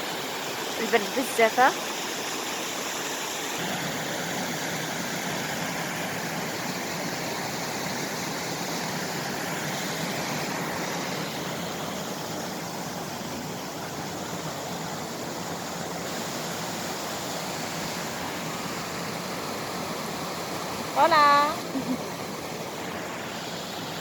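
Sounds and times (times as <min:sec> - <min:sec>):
river rushing: 0:00.0 - 0:24.0.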